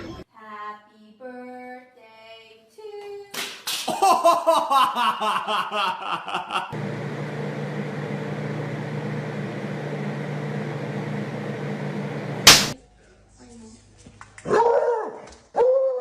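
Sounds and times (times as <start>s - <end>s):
pulsed laughter: 3.9s - 6.8s.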